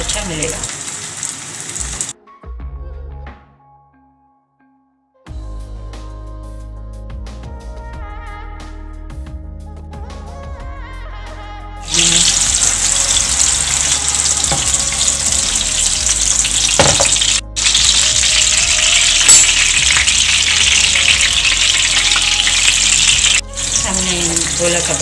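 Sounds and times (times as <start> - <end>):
meat sizzling in hot oil: 0.0 - 2.2, 11.8 - 25.0.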